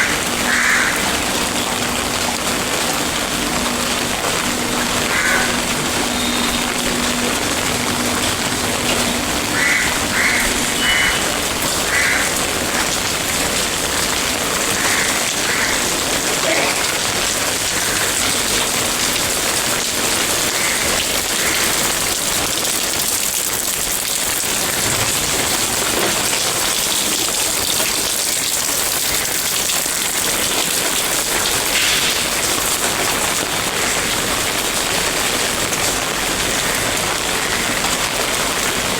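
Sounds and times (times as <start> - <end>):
heavy rain pattering: 0.0 - 38.9.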